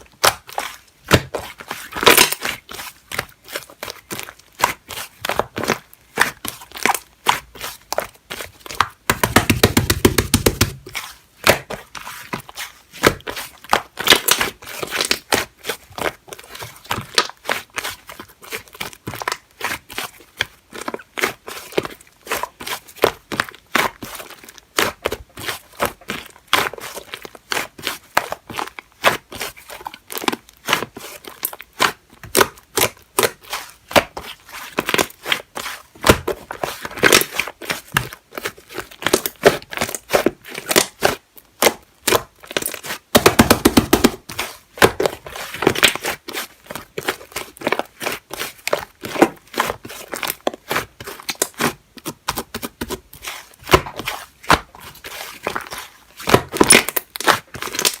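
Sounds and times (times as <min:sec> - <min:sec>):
slime crackling and popping: 0:24.3 - 0:58.0.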